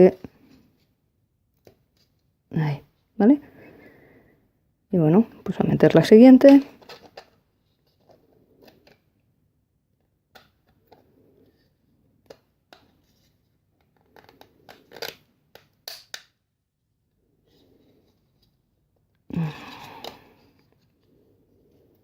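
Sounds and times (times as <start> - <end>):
plastic parts clicking and scraping: 12.2 - 16.3.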